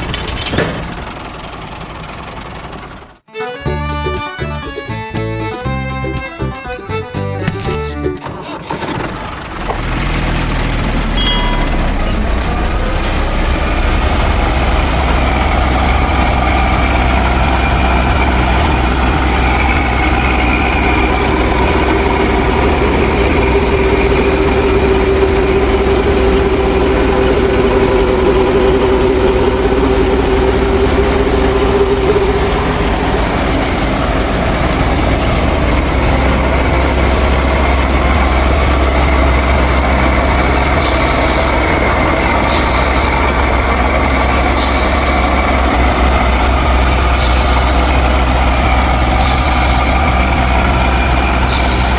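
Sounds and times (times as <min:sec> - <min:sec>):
machine motor humming and whining: 0:09.7 - 0:51.9
steady tone: 0:11.2 - 0:51.9.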